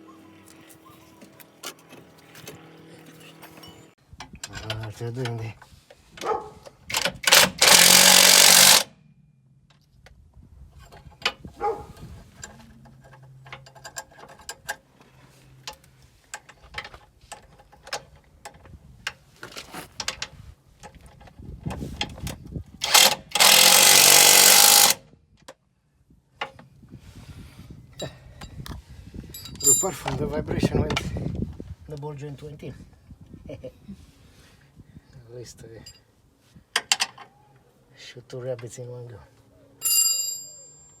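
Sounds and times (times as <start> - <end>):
tools clinking and knocking: 1.2 - 5.4, 12.4 - 14.8
power impact tool hammering: 6.9 - 9.0, 22.8 - 25.0.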